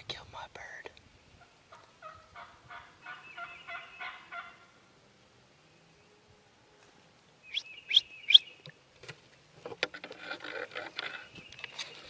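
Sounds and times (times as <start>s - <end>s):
wild turkey yelping: 1.4s - 4.8s.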